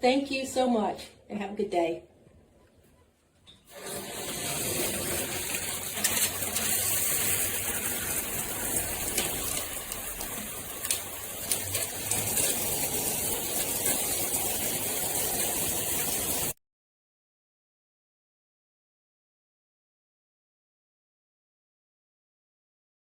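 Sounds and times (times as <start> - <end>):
shower water spraying: 3.7 - 16.6.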